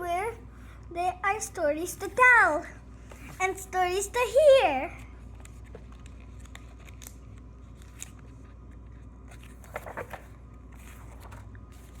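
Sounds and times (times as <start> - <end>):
low steady hum: 0.0 - 12.0
paper pages rustling: 4.9 - 12.0.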